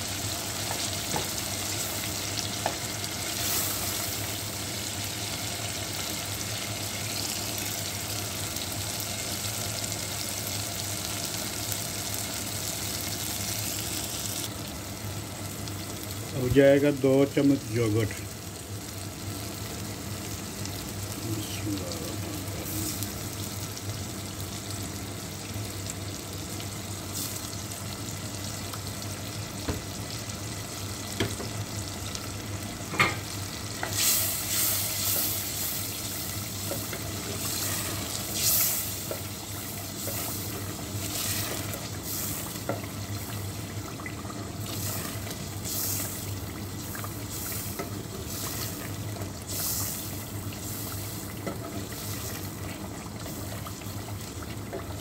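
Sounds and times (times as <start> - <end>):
sauce bubbling and sizzling in pot: 0.0 - 55.0
spatula stirring and scraping pot: 36.6 - 39.3, 40.0 - 42.4.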